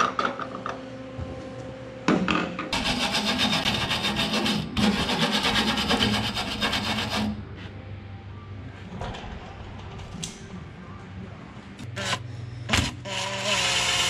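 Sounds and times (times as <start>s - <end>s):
tool rasping against metal: 2.8s - 7.4s.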